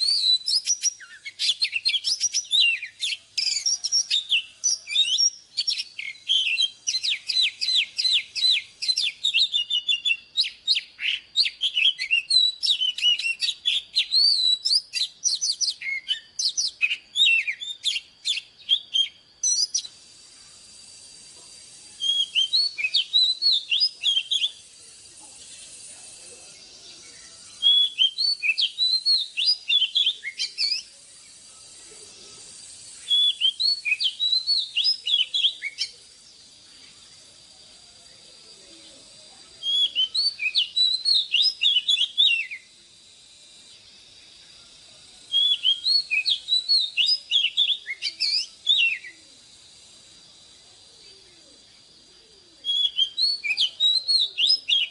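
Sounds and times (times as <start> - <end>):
bird singing whistled notes: 0.0 - 54.9.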